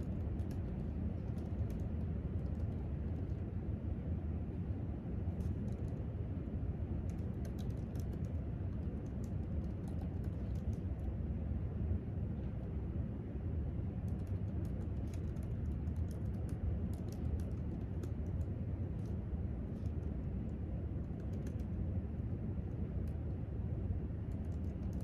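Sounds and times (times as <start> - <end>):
laptop keyboard typing: 0.0 - 3.4, 7.0 - 10.9, 14.0 - 21.8, 24.2 - 25.0
low background hum: 0.0 - 25.0.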